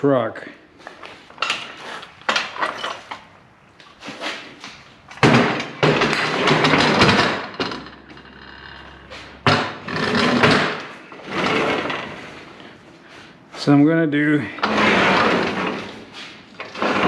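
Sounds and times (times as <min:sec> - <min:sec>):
equipment scraping and rattling: 0:00.8 - 0:17.0.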